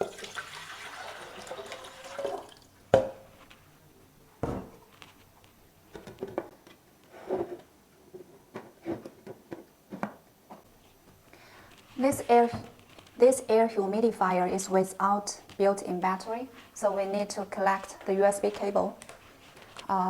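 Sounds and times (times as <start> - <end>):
water pouring into tank: 0.0 - 2.7.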